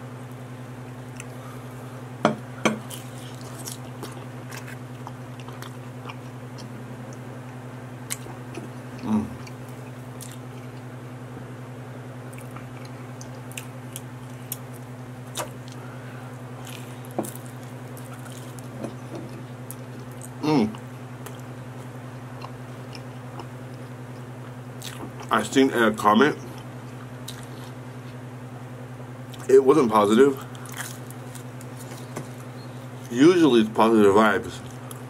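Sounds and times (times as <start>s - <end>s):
low hum: 0.0s - 33.9s
chewing and mouth clicks: 2.8s - 7.2s, 8.1s - 10.9s, 12.3s - 15.8s, 16.6s - 21.5s, 22.4s - 25.3s, 26.4s - 28.2s, 30.4s - 33.1s.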